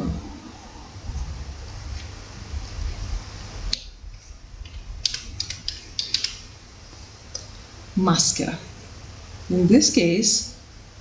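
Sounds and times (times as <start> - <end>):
low rumble: 0.1 - 5.2
sharp clicks: 5.0 - 6.4.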